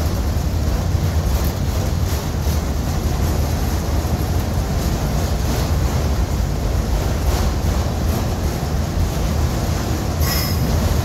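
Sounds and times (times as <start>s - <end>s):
train wheels rumbling on rail joints: 0.0s - 11.0s
high-pitched squeal: 10.2s - 10.7s.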